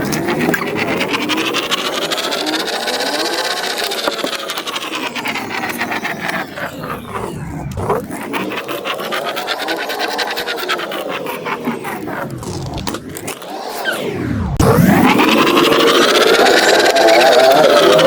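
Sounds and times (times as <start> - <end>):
pen scratching on paper: 0.0 - 6.7
gear teeth ticking: 0.0 - 13.6.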